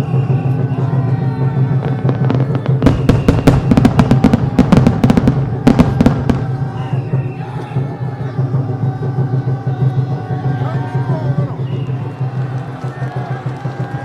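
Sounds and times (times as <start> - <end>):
background music: 0.0 - 14.0
fireworks bangs: 0.4 - 7.2.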